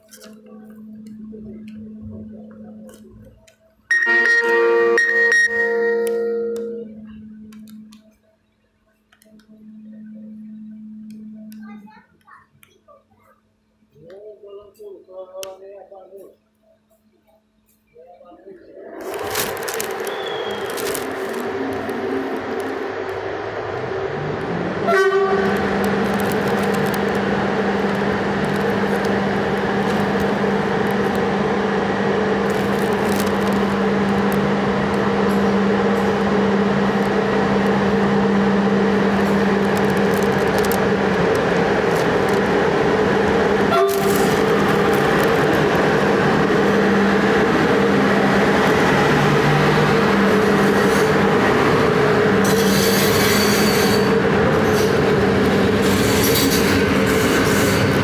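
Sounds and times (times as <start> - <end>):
train rolling rumble: 0.0 - 12.6, 17.2 - 58.0
electric locomotive hum: 0.0 - 58.0
locomotive horn blast: 3.9 - 7.5, 24.8 - 26.0, 43.6 - 44.5.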